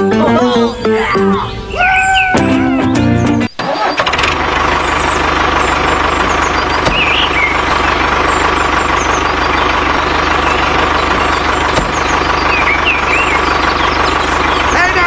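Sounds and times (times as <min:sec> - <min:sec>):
tractor engine chugging: 0:03.1 - 0:15.0.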